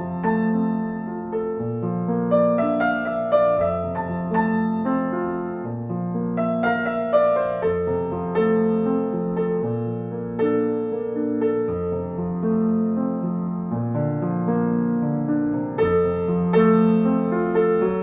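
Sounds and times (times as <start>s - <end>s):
slow calm piano music: 0.0s - 18.0s.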